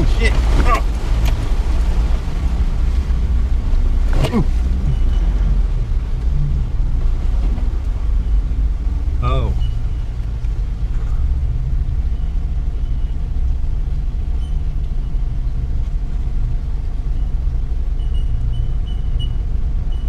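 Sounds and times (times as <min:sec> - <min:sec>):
low engine rumble inside cab: 0:00.0 - 0:20.0.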